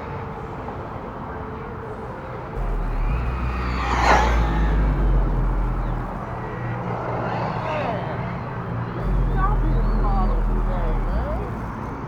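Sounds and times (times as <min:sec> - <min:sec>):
low rumble: 0:02.6 - 0:07.6, 0:09.0 - 0:12.0
radio-controlled car passing: 0:02.6 - 0:12.0.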